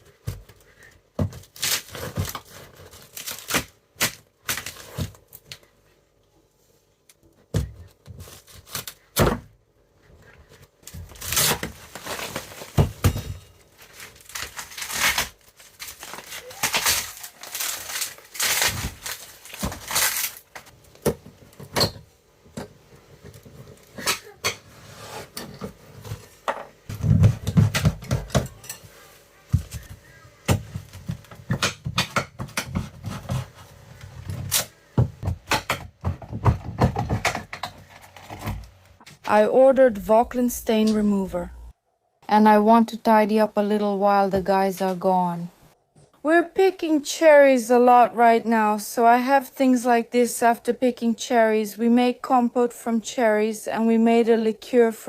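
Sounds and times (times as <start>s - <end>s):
scraping and tearing wood: 13.7s - 20.7s
knocks and thuds on boards: 35.0s - 37.6s.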